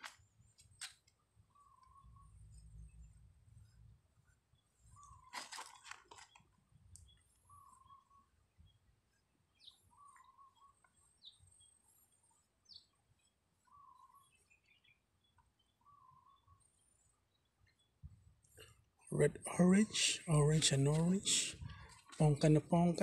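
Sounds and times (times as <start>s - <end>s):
faint warbling bird calls: 1.4s - 18.0s
higher bird chirps: 1.5s - 3.1s, 4.5s - 5.4s, 7.0s - 8.9s, 9.5s - 18.0s.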